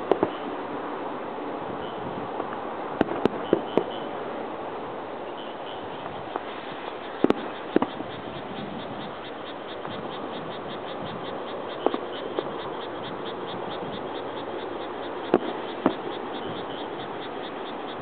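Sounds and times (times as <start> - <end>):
pulsing insect chorus: 5.3 - 18.0.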